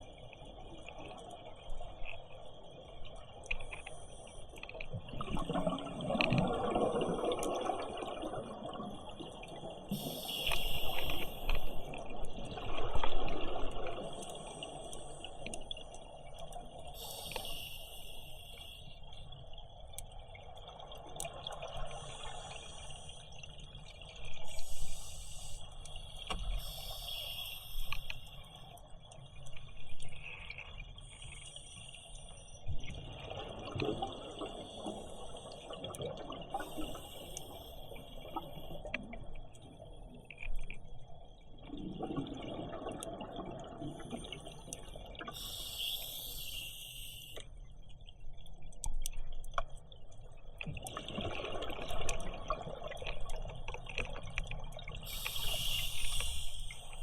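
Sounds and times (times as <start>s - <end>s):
hissing regulator inhalations: 9.9s - 12.0s, 17.0s - 19.0s, 24.5s - 28.5s, 36.6s - 38.8s, 45.3s - 47.5s, 55.0s - 57.0s.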